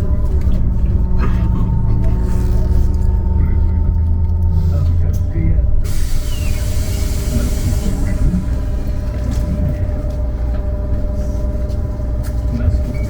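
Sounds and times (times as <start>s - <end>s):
trolleybus electric drive hum: 0.0s - 13.0s
compressed air hiss: 5.9s - 8.6s.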